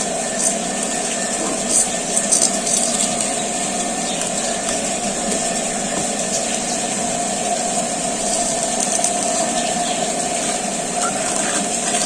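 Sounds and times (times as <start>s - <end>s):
fan motor humming with air hiss: 0.0s - 12.0s.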